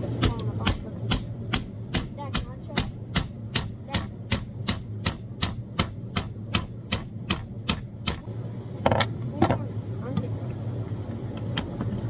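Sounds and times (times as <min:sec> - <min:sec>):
hammer tapping: 0:00.0 - 0:08.2
low steady hum: 0:00.0 - 0:12.0.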